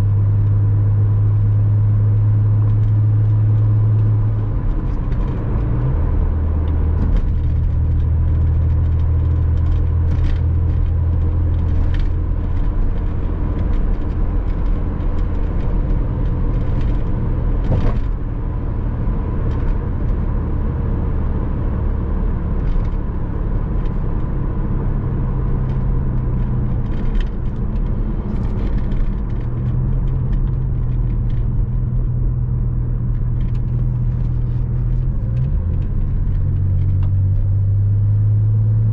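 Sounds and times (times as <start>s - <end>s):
car engine drone: 0.0s - 38.9s
road and tyre noise: 0.0s - 38.9s.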